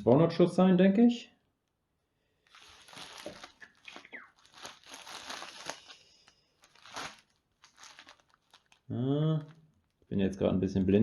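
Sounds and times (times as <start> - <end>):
packaging crinkling and rustling: 2.4 - 10.1.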